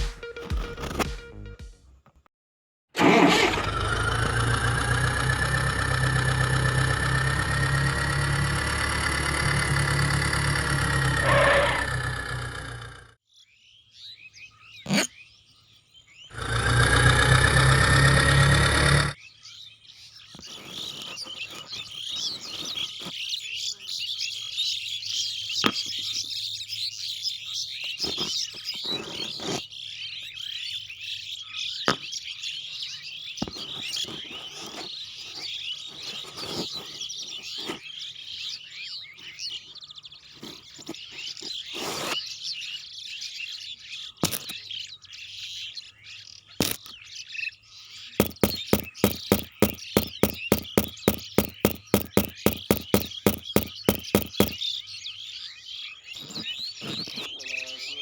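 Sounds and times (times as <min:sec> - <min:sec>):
small birds chirping: 0:12.7 - 0:17.5, 0:19.0 - 0:58.0
sharp evenly spaced clicks: 0:48.2 - 0:54.6.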